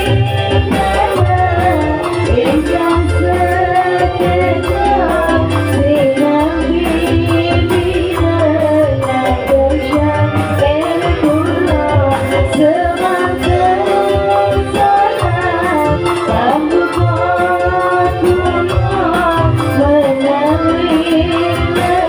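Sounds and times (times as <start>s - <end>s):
pulsing heavy bass: 0.0s - 22.0s
song over sound system: 0.0s - 22.0s.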